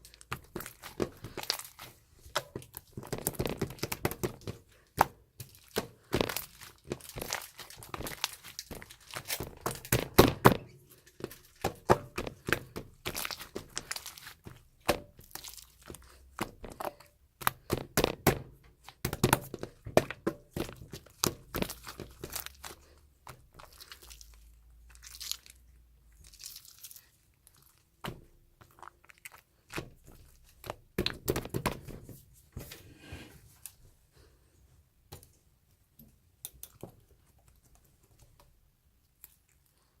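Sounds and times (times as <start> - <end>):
slime squished by hand: 0.0 - 32.1.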